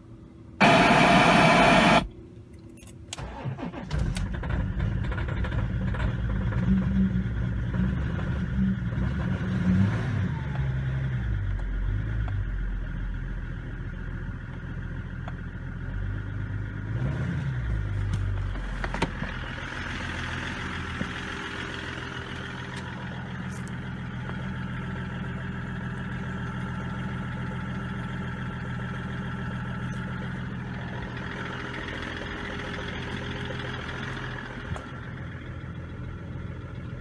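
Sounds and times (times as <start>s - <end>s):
diesel engine starting and idling: 0.6s - 2.1s, 3.1s - 8.3s, 10.1s - 37.0s
very loud burst of noise: 0.6s - 2.1s.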